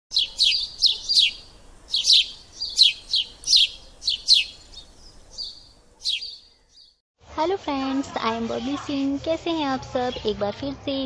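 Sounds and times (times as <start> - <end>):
thin held bird whistle: 0.1 - 4.6, 5.4 - 6.5
short high bird chirps: 0.1 - 7.0.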